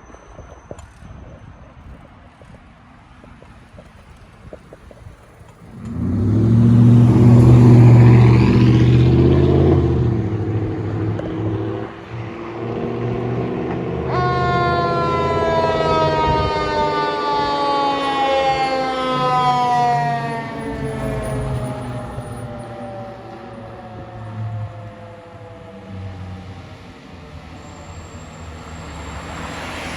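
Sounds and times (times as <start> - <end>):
diesel engine revving: 5.7 - 17.5, 19.2 - 29.9
siren falling in pitch: 13.7 - 26.6.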